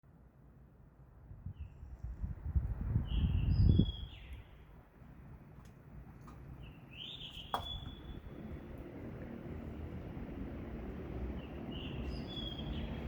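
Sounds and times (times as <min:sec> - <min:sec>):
bird chirps: 0:03.1 - 0:04.6, 0:06.6 - 0:08.3, 0:11.4 - 0:13.0.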